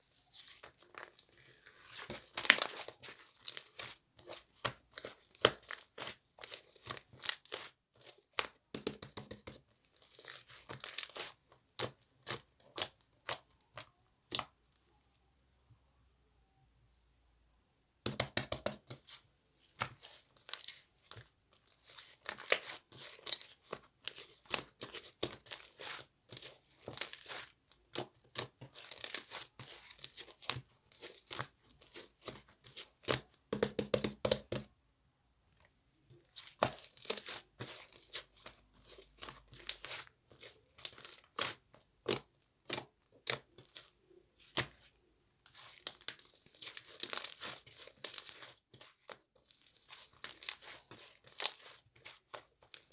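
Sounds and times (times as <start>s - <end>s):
slime crackling and tearing: 45.5s - 48.5s, 49.6s - 51.8s.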